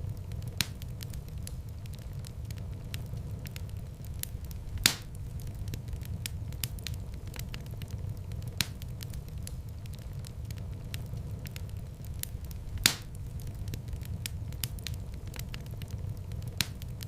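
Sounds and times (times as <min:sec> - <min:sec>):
low fire rumble: 0:00.0 - 0:17.0
wood fire crackling: 0:00.0 - 0:17.0
loud wood pop: 0:04.8 - 0:05.1, 0:12.9 - 0:13.1.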